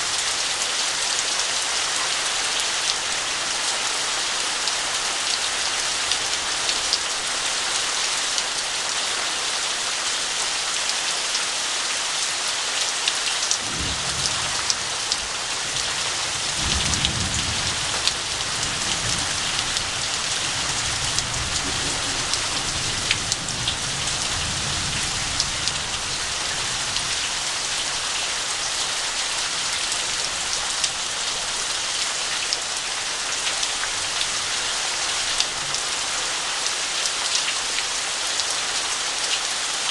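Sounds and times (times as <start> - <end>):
heavy rain: 0.0 - 39.9
thunder rumbling: 13.6 - 25.5.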